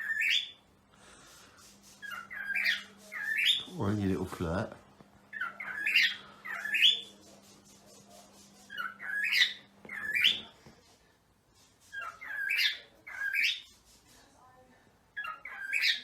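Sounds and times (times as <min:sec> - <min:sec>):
cockatiel warbling whistled calls: 0:08.7 - 0:10.4.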